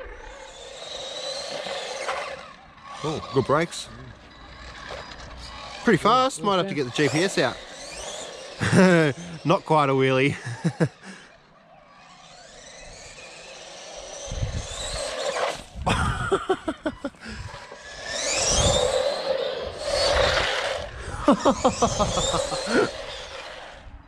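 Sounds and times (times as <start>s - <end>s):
electric motor whining: 0.0s - 24.0s
tyres rumbling on ground: 12.0s - 23.8s.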